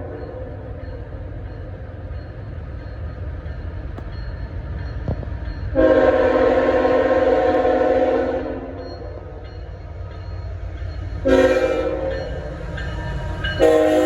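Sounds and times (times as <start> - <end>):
locomotive rumble: 0.0 - 14.0
multi-chime air horn: 11.2 - 12.3.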